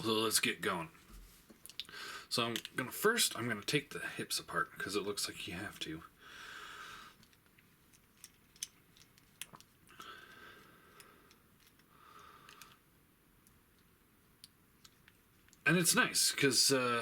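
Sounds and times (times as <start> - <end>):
plastic toy parts clicking: 2.5 - 2.8, 7.2 - 10.0, 10.9 - 12.8.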